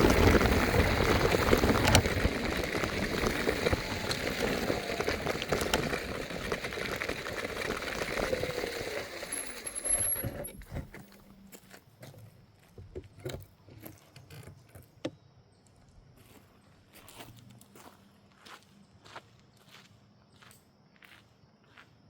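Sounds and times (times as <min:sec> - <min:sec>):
electric scooter rattling over rough surface: 0:00.0 - 0:11.4.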